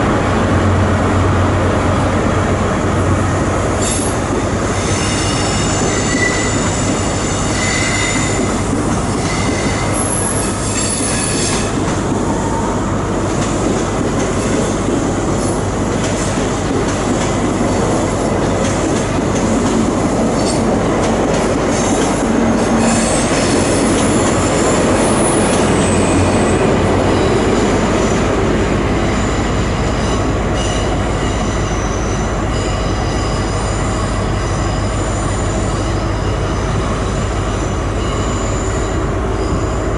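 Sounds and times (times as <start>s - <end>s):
train wheels on rails: 0.0s - 39.9s
high-pitched wheel squeals: 4.8s - 8.4s, 9.1s - 11.7s.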